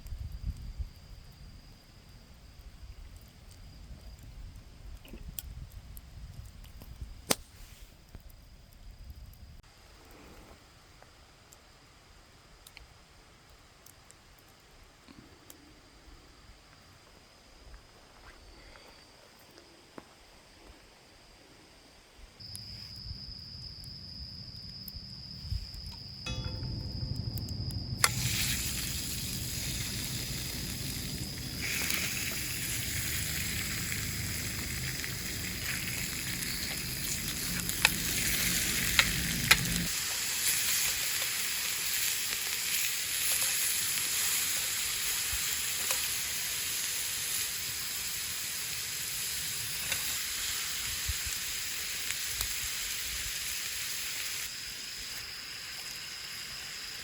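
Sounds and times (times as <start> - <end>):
sharp pops: 7.2 - 7.6
food sizzling in a pan: 28.0 - 57.0.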